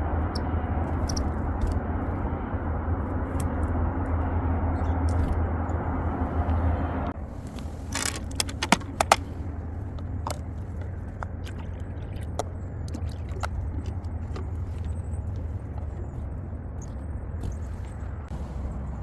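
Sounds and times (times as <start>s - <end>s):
distant traffic rumble: 0.0s - 19.0s
sharp clicks and taps: 8.0s - 9.2s.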